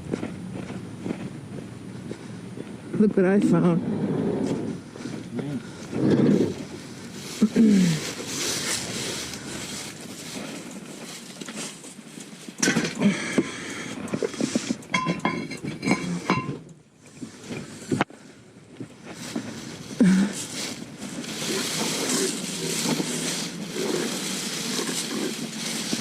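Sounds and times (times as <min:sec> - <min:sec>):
junk rustling and clattering: 0:03.8 - 0:26.0
metallic clinks: 0:14.8 - 0:16.7.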